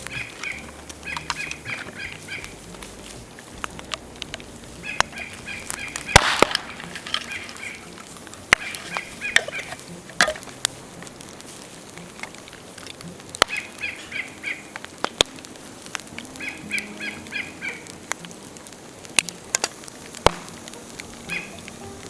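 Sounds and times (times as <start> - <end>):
bamboo cracking in a bonfire: 0.0 - 22.0
bird calling: 0.0 - 22.0.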